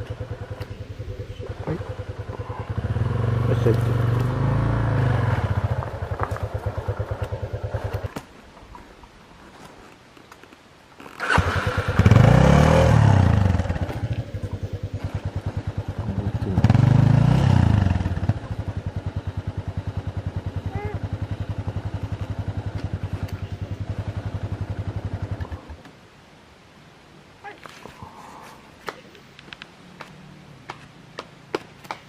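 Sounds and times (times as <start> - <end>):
motorcycle engine idling and revving: 0.0 - 8.3, 11.0 - 26.0.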